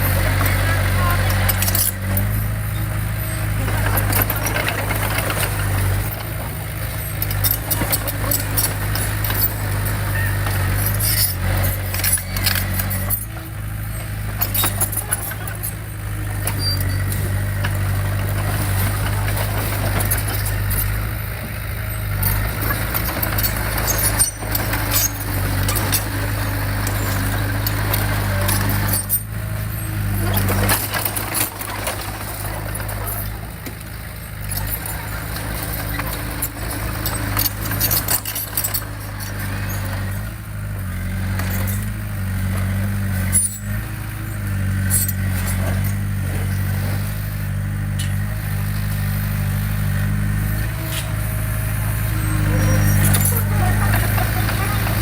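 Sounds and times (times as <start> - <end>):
diesel engine drone: 0.0 - 55.0
metallic clanks and rattles: 14.0 - 40.4.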